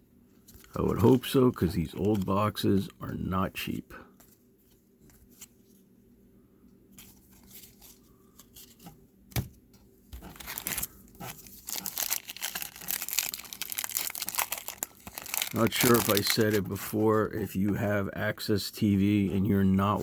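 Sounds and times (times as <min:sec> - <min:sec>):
card pack wrapper crinkling: 0:00.5 - 0:02.6, 0:10.2 - 0:17.2.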